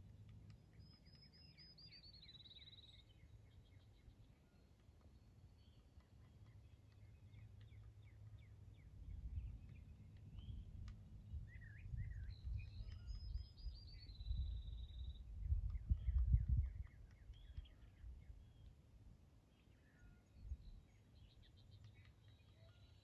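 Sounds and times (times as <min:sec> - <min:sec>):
small birds chirping: 0:00.0 - 0:23.0
bird trill: 0:00.7 - 0:04.6, 0:11.5 - 0:18.7, 0:19.6 - 0:23.0
wind rumble on microphone: 0:08.7 - 0:18.8, 0:20.4 - 0:21.5.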